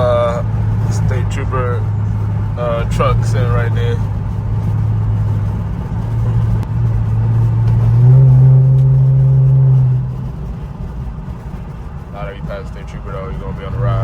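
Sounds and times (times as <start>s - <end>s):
car engine droning while cruising: 0.0s - 14.0s.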